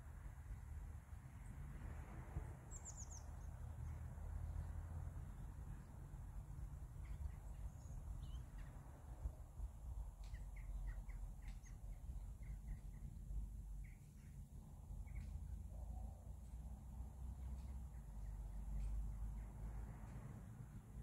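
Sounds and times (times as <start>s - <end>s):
faint low rumble: 0.0s - 21.0s
small birds chirping: 2.7s - 4.0s, 4.6s - 9.2s, 9.9s - 15.8s, 17.3s - 20.2s.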